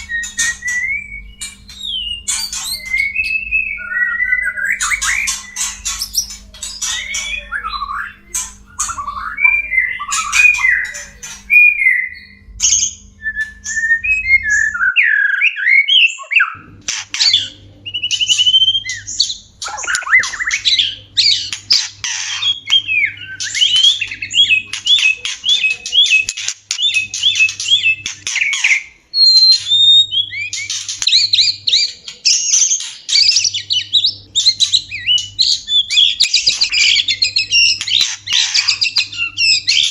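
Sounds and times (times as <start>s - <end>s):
faint low hum: 0.0s - 15.0s
birds singing and chattering: 0.0s - 39.9s.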